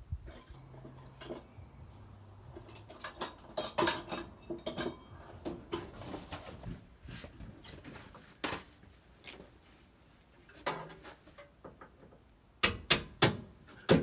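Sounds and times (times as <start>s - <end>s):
metal hand tools clinking: 0.3s - 6.6s.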